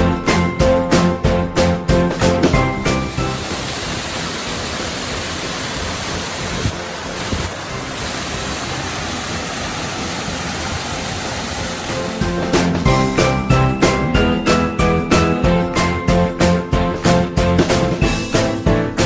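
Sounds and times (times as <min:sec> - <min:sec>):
jingly music: 0:00.0 - 0:04.0, 0:12.1 - 0:19.0
waterfall rushing: 0:02.5 - 0:13.5.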